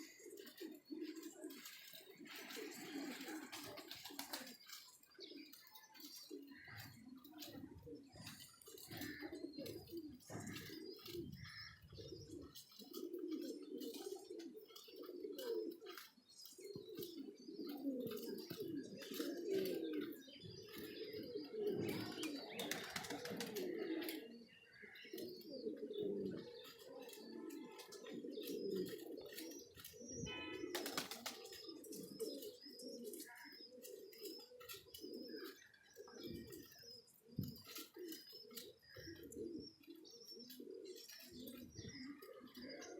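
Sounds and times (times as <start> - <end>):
pigeons cooing: 0.0 - 42.9
wings flapping: 1.5 - 4.8, 21.9 - 23.8, 30.7 - 31.6.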